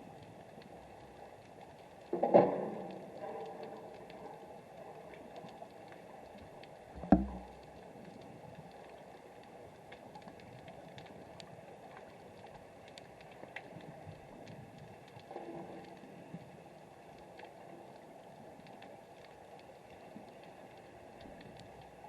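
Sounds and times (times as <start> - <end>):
dull knock: 7.0 - 7.6.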